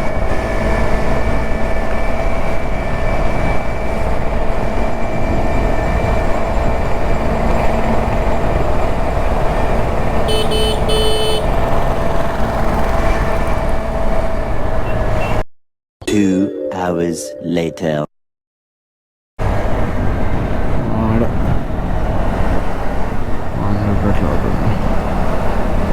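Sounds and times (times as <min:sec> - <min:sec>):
scooter road and wind noise: 0:00.0 - 0:15.4, 0:19.4 - 0:25.9
vehicle horn honking: 0:10.2 - 0:12.0.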